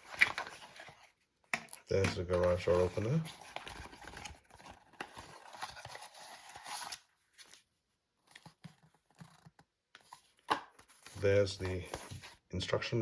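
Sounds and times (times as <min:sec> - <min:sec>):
packaging rustling and crinkling: 0:02.4 - 0:07.7.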